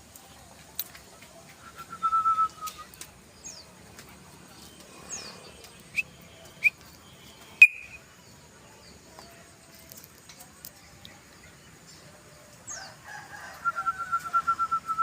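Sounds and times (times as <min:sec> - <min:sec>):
bird whistled calls: 0:01.6 - 0:02.9, 0:07.6 - 0:08.0, 0:13.5 - 0:15.0.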